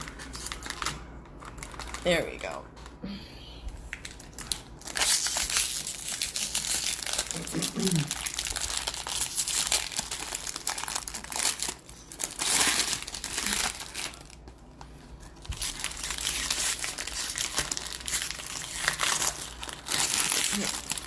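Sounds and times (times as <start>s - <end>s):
plastic wrappers crinkling: 0.0s - 2.6s, 3.9s - 21.0s.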